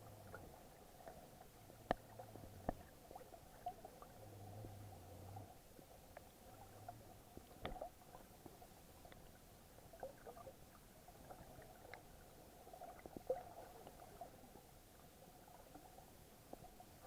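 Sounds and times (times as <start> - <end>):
muffled underwater water movement: 0.0 - 17.0
soft clicks and pops: 0.3 - 2.9, 7.3 - 9.3.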